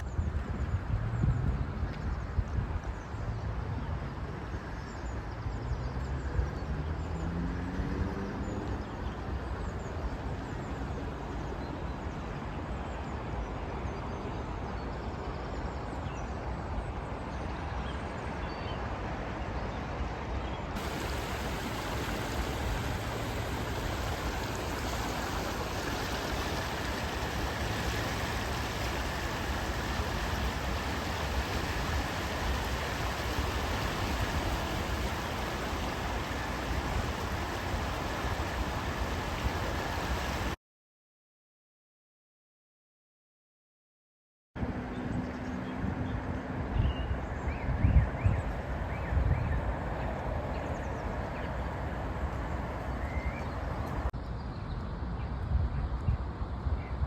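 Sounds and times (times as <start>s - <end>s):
floodwater rushing: 20.8s - 40.6s, 49.6s - 54.1s.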